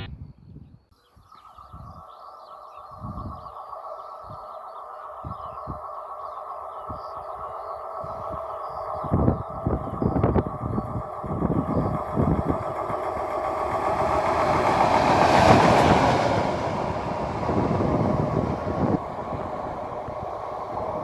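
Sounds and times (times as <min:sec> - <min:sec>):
wind buffeting microphone: 0:00.0 - 0:02.2, 0:02.8 - 0:03.6, 0:05.2 - 0:05.9, 0:06.7 - 0:21.0
train passing: 0:04.7 - 0:21.0.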